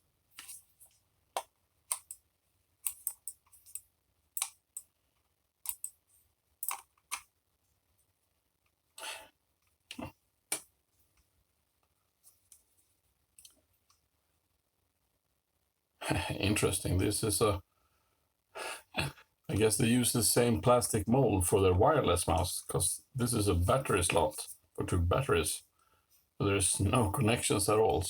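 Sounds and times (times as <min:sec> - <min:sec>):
plastic mouse clicks and scrapes: 0:00.3 - 0:02.2, 0:02.8 - 0:04.9, 0:05.6 - 0:06.0, 0:06.6 - 0:07.3.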